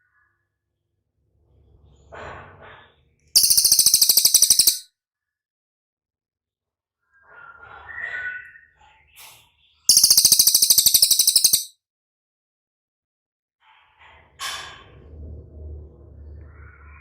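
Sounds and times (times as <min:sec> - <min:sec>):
bird high rapid trill: 0:03.4 - 0:04.8, 0:09.9 - 0:11.7
soft bird chirps: 0:03.4 - 0:04.8, 0:09.9 - 0:11.7.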